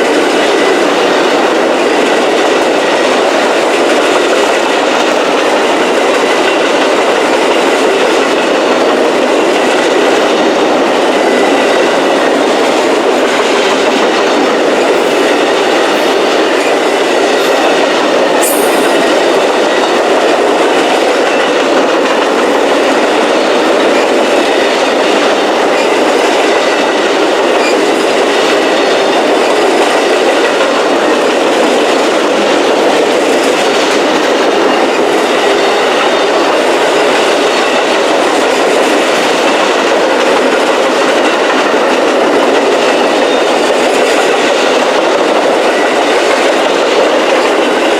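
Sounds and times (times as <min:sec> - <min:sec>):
train wheels rolling on rails: 0:00.0 - 0:47.9.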